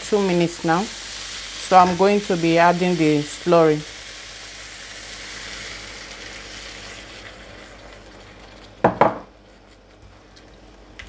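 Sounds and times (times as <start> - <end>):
vegetables sizzling in a wok: 0.0 - 9.6
sauce poured into a wok: 3.9 - 8.6.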